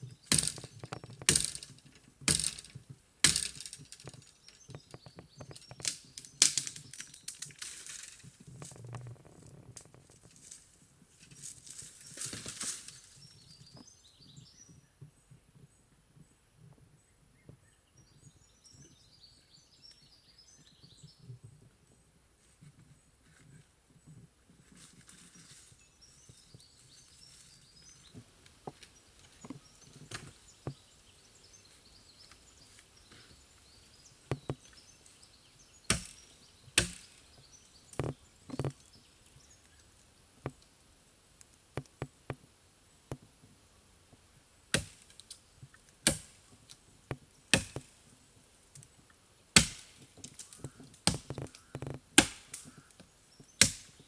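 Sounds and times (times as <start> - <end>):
blade chopping wood: 0.3 - 4.2, 35.9 - 36.2, 36.8 - 37.2, 44.7 - 45.2, 46.0 - 46.4, 47.5 - 47.9, 49.6 - 52.7, 53.6 - 54.0.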